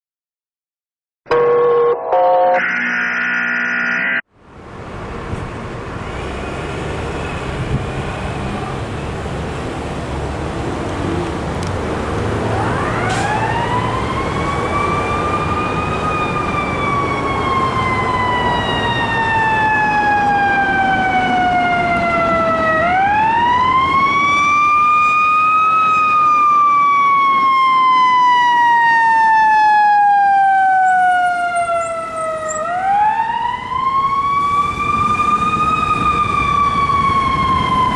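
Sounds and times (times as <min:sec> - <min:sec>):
wailing siren: 0:01.3 - 0:04.2, 0:12.0 - 0:37.9
fire engine rumbling: 0:04.4 - 0:37.9.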